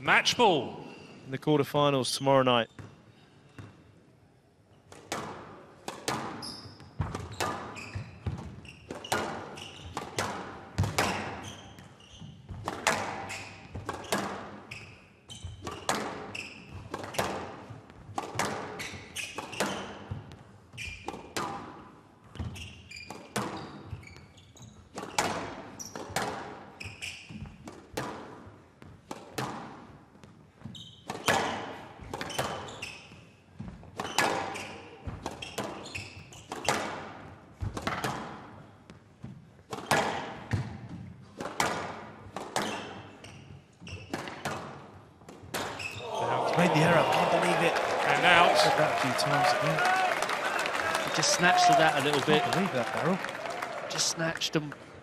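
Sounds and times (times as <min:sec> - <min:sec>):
squash ball hitting rackets and walls: 0:04.9 - 0:46.0
shoe squeaks: 0:06.4 - 0:10.0, 0:11.0 - 0:12.6, 0:13.2 - 0:17.3, 0:18.8 - 0:21.2, 0:22.4 - 0:26.1, 0:26.8 - 0:27.6, 0:30.6 - 0:31.4, 0:32.2 - 0:36.8, 0:42.6 - 0:44.6, 0:45.6 - 0:46.4.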